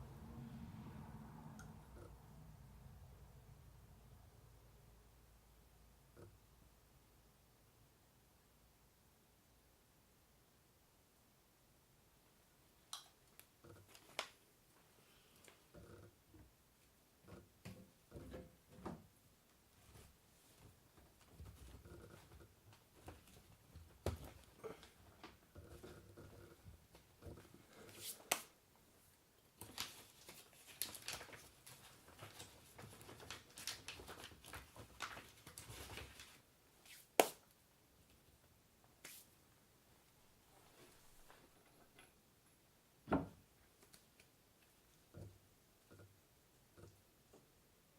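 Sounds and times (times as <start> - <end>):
faint clicks and light knocks: 43.6 - 47.6.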